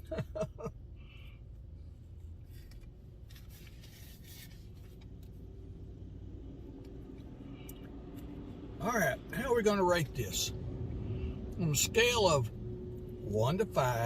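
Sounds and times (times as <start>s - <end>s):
steady low hum: 0.0s - 14.0s
faint rubbing and scraping: 1.9s - 5.3s.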